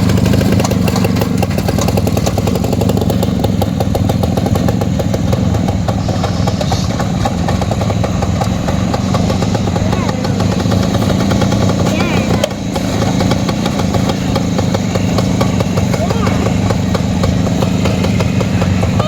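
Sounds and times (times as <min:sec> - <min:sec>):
two-stroke engine running: 0:00.0 - 0:19.0.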